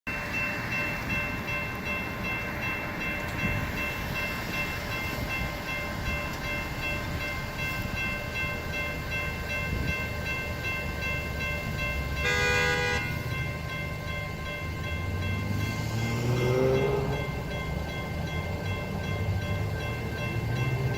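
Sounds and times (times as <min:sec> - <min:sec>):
level-crossing warning bell ringing: 0:00.1 - 0:20.9
train rumble: 0:00.1 - 0:20.9
train horn blast: 0:12.2 - 0:13.2.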